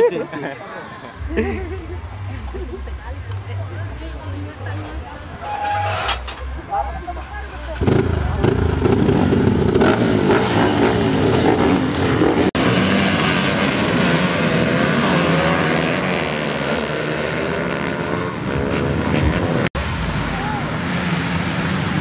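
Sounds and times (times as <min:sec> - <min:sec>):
motocross bikes revving: 0:01.2 - 0:19.8.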